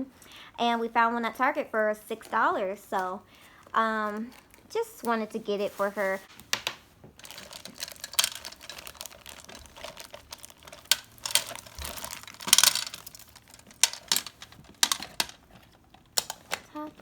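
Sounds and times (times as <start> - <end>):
plastic toy clicking and rustling: 6.5 - 17.0.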